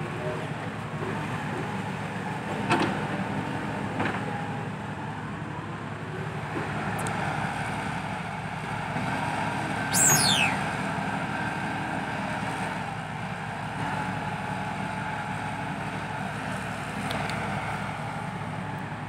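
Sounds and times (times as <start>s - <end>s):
heavy diesel truck engines running: 0.0s - 19.0s
loud high whistle falling in pitch: 9.9s - 10.7s.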